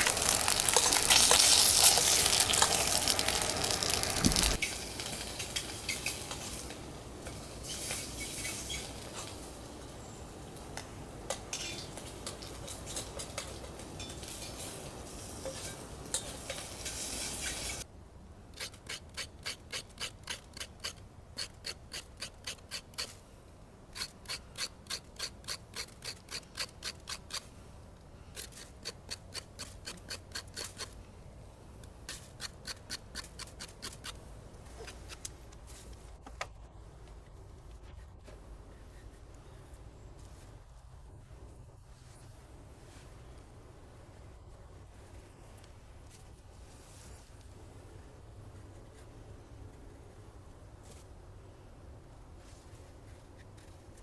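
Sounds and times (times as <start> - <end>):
dense rustling scraping noise: 0.0 - 9.6, 14.0 - 17.9, 44.0 - 48.0.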